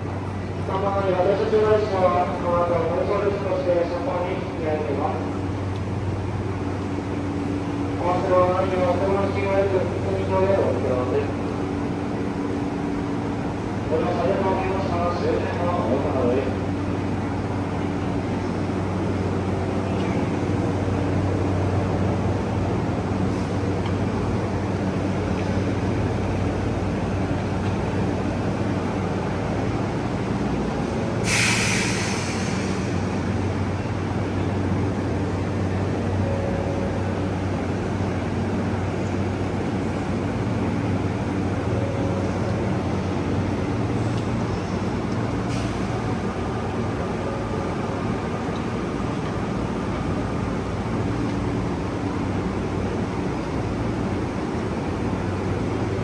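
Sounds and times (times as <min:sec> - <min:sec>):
diesel train idling rumble: 0:00.0 - 0:56.0
air brake hiss: 0:31.2 - 0:33.4, 0:45.5 - 0:45.9.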